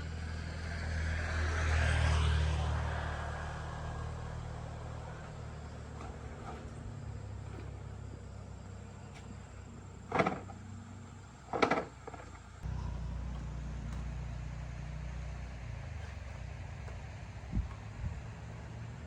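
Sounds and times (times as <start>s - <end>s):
small motorbike engine running: 11.5s - 19.0s.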